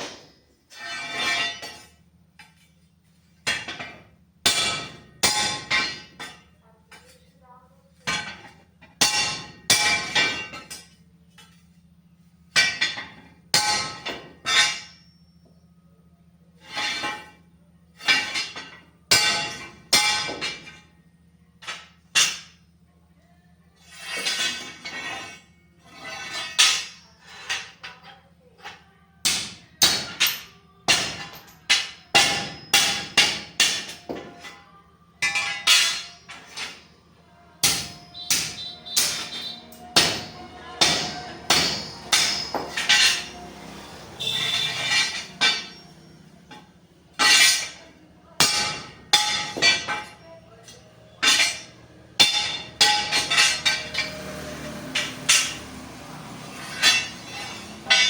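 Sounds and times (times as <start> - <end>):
hammer striking steel: 3.4 - 7.2, 8.0 - 11.7, 12.5 - 15.2, 18.0 - 20.8, 21.6 - 22.6, 26.0 - 34.6, 35.2 - 36.9, 37.6 - 58.0.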